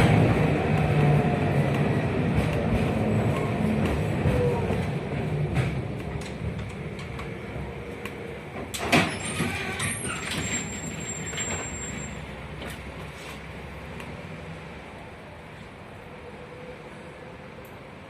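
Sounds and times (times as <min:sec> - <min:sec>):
tram running noise: 0:00.0 - 0:18.0.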